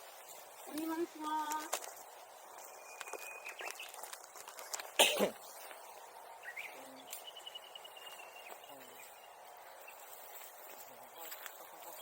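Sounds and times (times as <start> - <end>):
person coughing: 5.0 - 5.4.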